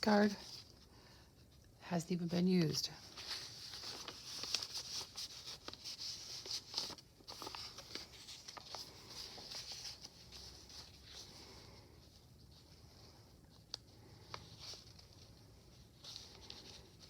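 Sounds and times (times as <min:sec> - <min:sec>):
paper rustling and crinkling: 0:02.4 - 0:17.0.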